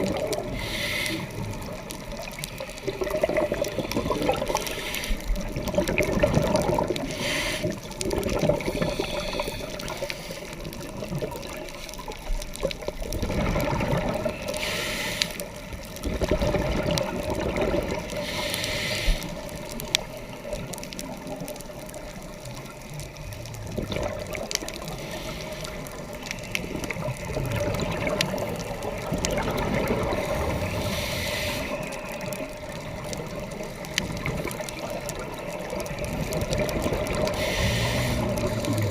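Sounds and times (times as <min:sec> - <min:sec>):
exhaled bubbles rumbling: 0:00.0 - 0:14.8, 0:15.4 - 0:38.9
scuba regulator hissing: 0:37.4 - 0:38.4.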